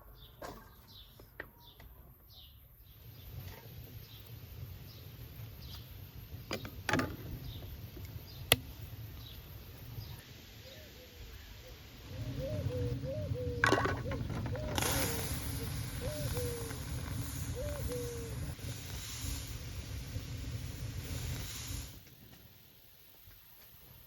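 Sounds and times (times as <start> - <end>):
small birds chirping: 0.0 - 18.6.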